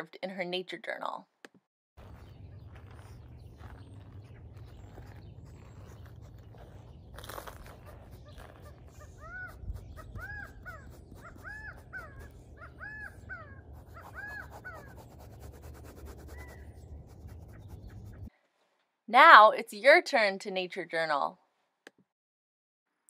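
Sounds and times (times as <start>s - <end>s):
bird calling: 2.0s - 15.1s.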